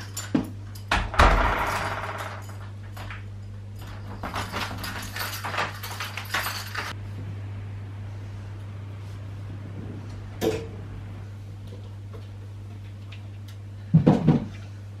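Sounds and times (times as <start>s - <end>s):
keys jangling: 0.0s - 0.9s, 1.7s - 7.0s
door shutting with thud: 0.9s - 2.4s.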